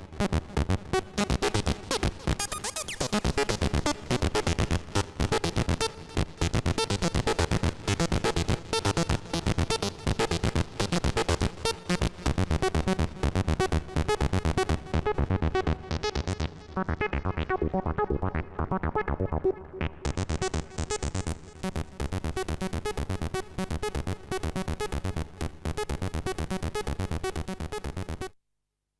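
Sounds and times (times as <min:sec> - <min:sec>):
synthesizer sequenced notes: 0:15.5 - 0:21.1.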